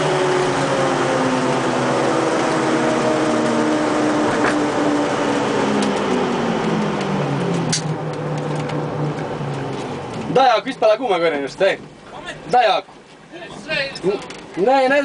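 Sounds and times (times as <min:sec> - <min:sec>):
car engine revs falling: 0:00.0 - 0:10.4
road and tyre noise: 0:00.0 - 0:15.0.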